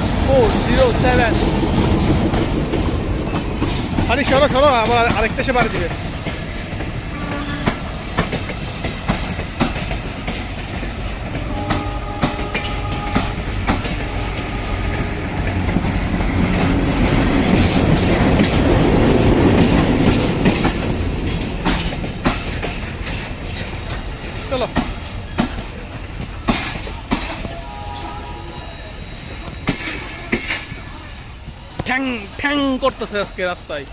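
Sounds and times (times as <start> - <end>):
train wheels clacking over rail joints: 0.0 - 27.7, 29.3 - 31.0
train rumble: 0.0 - 33.9.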